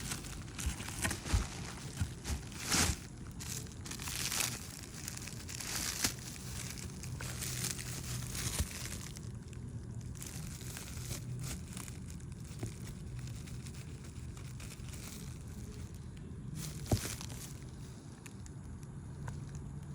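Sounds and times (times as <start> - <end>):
packaging crinkling: 0.0 - 19.9.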